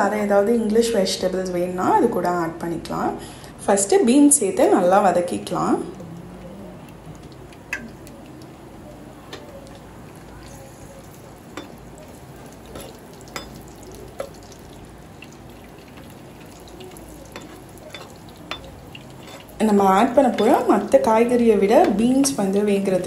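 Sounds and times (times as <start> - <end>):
beans sizzling in oil: 6.8 - 23.0
spatula tapping on pan: 12.7 - 14.5, 17.2 - 19.4.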